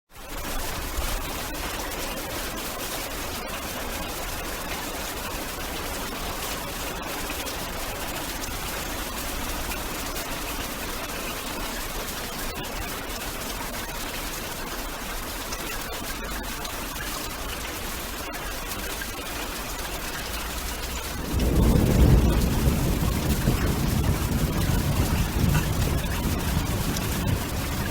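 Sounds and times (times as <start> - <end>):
heavy rain hissing: 19.2 - 27.9.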